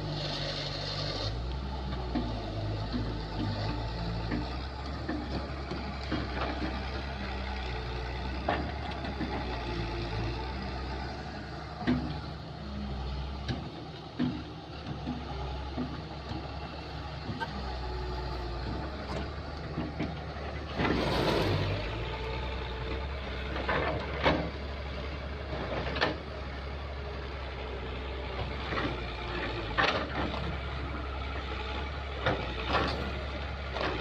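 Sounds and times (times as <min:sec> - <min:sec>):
diesel engine running: 0:00.0 - 0:34.0
machine knocks and clanks: 0:02.0 - 0:07.2, 0:11.7 - 0:12.3, 0:13.4 - 0:17.6, 0:18.6 - 0:22.0, 0:23.4 - 0:24.8.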